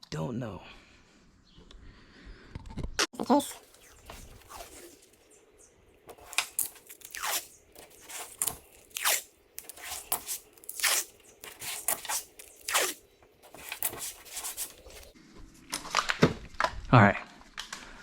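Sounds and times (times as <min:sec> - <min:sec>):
hand tool scraping hard surface: 0:06.1 - 0:15.1.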